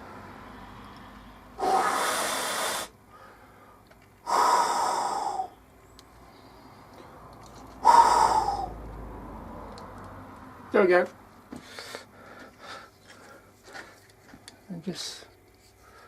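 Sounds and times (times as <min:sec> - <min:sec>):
loud breaths close to microphone: 0:00.4 - 0:05.6, 0:06.2 - 0:08.8, 0:11.5 - 0:14.1.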